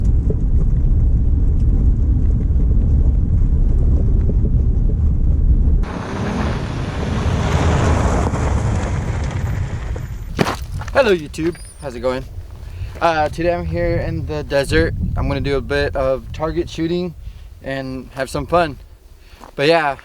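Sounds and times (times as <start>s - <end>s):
wind buffeting microphone: 10.4s - 19.2s.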